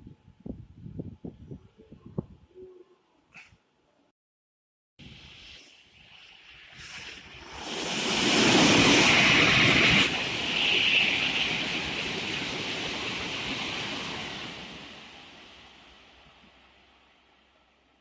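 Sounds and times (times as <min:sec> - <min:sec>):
train passing at speed: 0:06.5 - 0:18.0.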